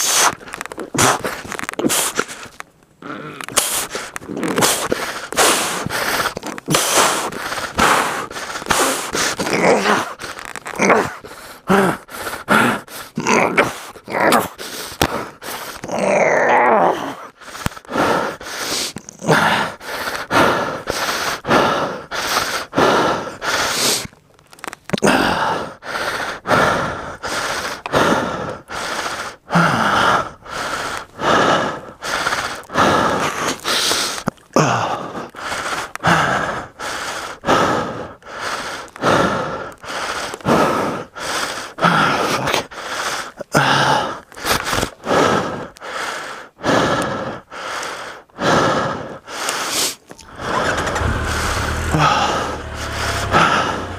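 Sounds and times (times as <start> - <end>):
man panting hard: 3.5 - 10.4, 11.0 - 15.9, 17.0 - 24.1, 25.0 - 53.9
man grunting with strain: 50.2 - 53.9.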